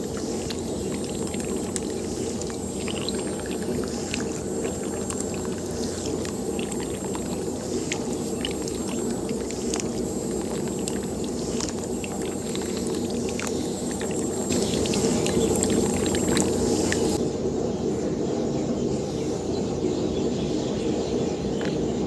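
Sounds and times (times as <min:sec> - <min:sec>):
electric water pump running: 0:00.0 - 0:17.2
water pouring and splashing: 0:00.0 - 0:17.2.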